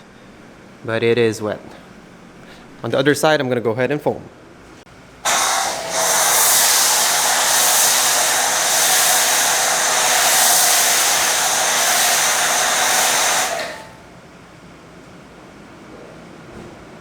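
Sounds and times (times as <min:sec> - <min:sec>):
pressure washer foam spray hiss: 0:05.3 - 0:14.0.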